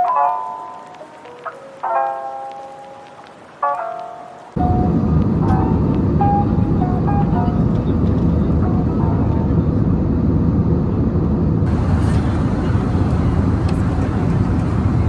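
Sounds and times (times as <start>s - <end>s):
airliner cabin noise: 3.0s - 15.0s.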